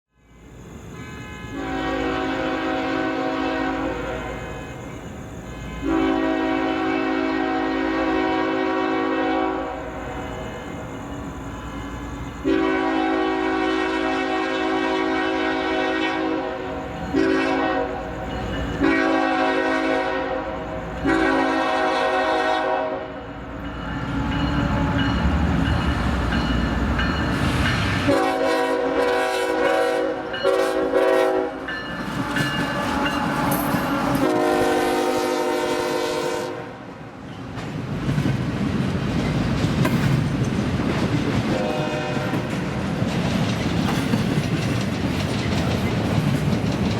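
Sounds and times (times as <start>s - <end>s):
locomotive air horn blasts: 0.9s - 4.7s, 5.6s - 9.9s, 12.4s - 18.1s, 18.8s - 23.2s, 28.0s - 36.9s, 41.6s - 42.5s
train clickety-clack on rails: 9.6s - 36.5s, 37.1s - 46.9s.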